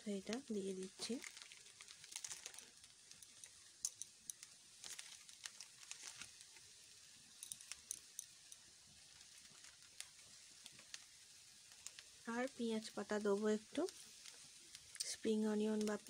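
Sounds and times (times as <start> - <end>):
rice crackling in a pan: 0.0 - 16.0.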